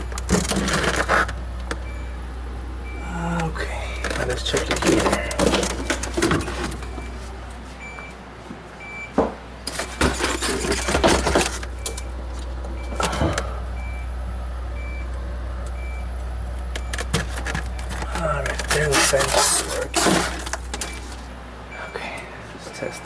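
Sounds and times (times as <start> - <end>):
tools clattering in refrigerator: 0.0 - 1.4, 3.9 - 7.1, 9.2 - 12.0, 16.8 - 21.2
refrigerator humming: 0.0 - 23.0.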